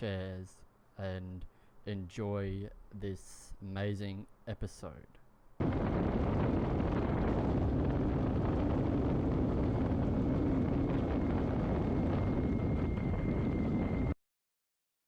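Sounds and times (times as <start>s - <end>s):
wind rushing over microphone: 5.6s - 14.2s.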